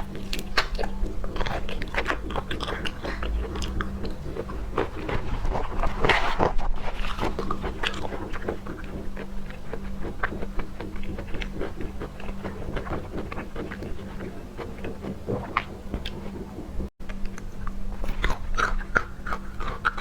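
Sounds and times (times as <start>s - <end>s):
wet chewing clicks and smacks: 0.0s - 5.2s, 7.0s - 20.0s.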